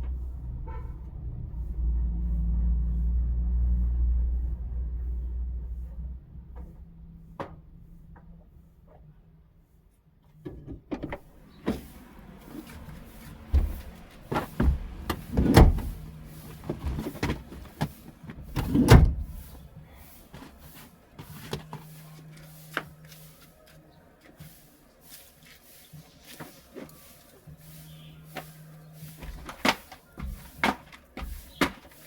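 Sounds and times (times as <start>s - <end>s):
knocks and clicks of handling: 29.2s - 32.0s.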